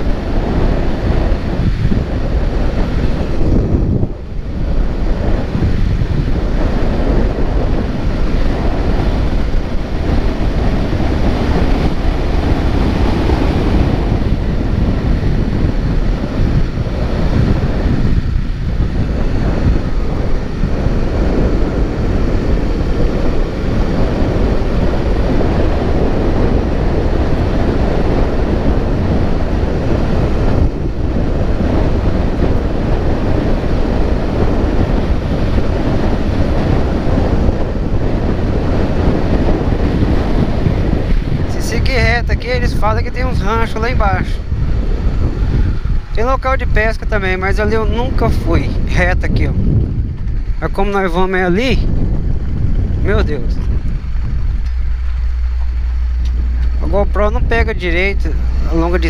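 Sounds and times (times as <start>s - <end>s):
wind buffeting microphone: 0.0s - 59.0s
vehicle running noise: 52.2s - 59.0s.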